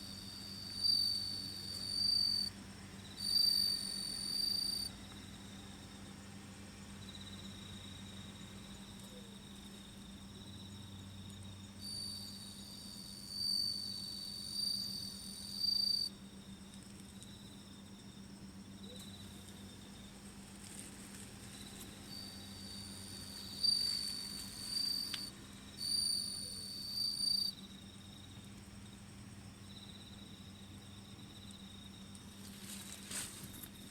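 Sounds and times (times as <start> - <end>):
loud high insect trill: 0.0 - 2.5, 3.1 - 5.6, 9.9 - 16.6, 20.8 - 29.0
faint high insect trill: 0.0 - 33.9
steady low hum: 0.0 - 33.9.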